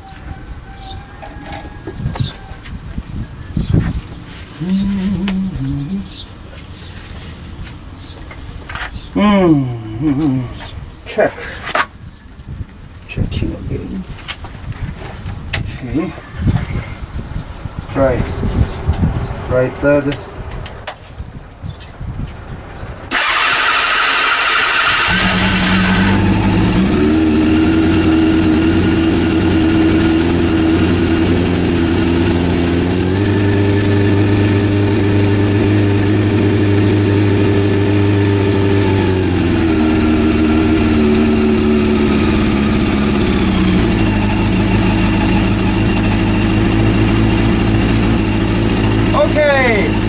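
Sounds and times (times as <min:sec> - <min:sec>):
motorcycle engine running: 0:00.8 - 0:06.8, 0:17.0 - 0:20.5, 0:23.1 - 0:50.0
electric starter cranking: 0:23.1 - 0:50.0.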